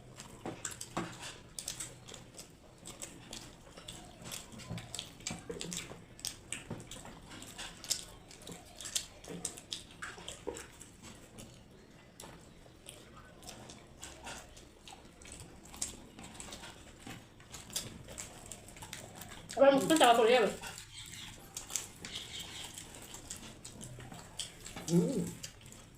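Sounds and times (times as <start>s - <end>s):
people chewing wetly: 0.0s - 25.9s.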